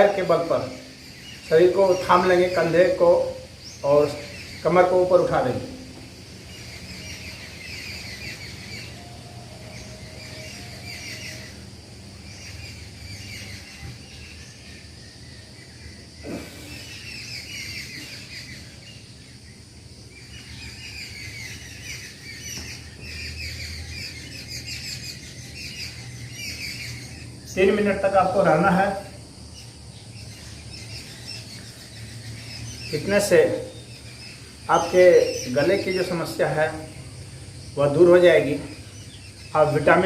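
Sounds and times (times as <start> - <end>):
birds twittering: 0.0 - 40.0
steady low hum: 0.0 - 40.0.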